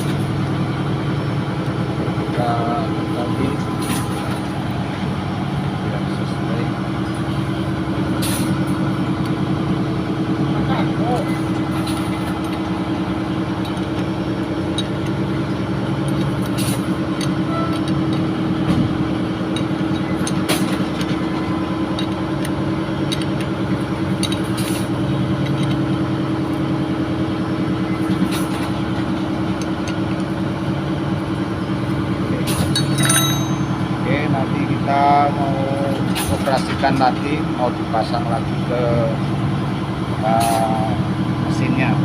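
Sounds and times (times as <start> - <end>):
diesel machinery droning: 0.0 - 42.0.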